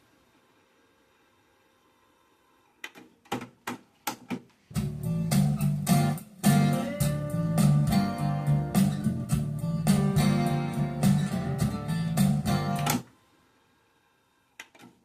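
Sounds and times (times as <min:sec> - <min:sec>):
plucked guitar notes: 0:04.8 - 0:12.9
rock band playing: 0:04.8 - 0:13.0.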